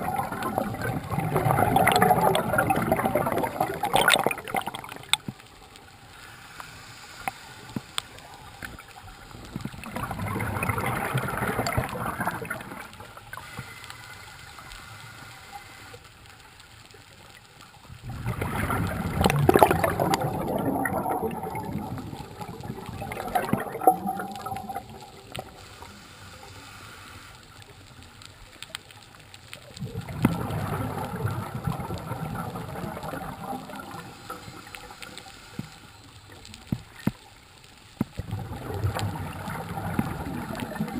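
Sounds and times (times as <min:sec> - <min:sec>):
underwater exhaled bubbles gurgling: 0:00.0 - 0:13.8, 0:16.8 - 0:40.9
diver breathing underwater: 0:06.1 - 0:08.4, 0:25.4 - 0:27.6.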